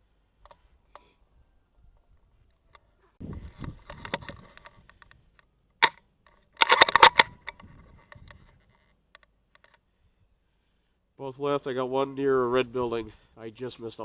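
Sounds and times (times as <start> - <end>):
rifle handling clicks and rattles: 2.7 - 9.8
sharp crack: 6.6 - 7.6.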